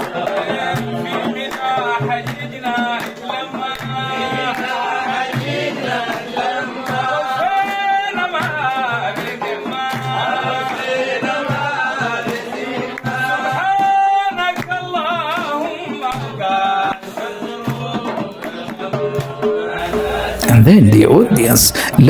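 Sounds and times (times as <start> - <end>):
person singing ornamented melody: 19.8 - 22.0.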